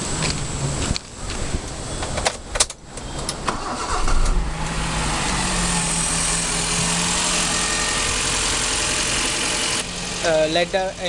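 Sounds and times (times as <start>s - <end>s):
car engine idling: 3.0s - 11.0s
car starter cranking: 3.3s - 5.0s.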